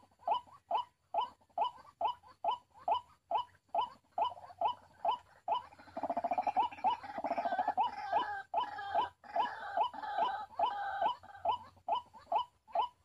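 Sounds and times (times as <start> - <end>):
waterhen calling: 3.3 - 13.0
fast stuttering croak: 5.5 - 9.5.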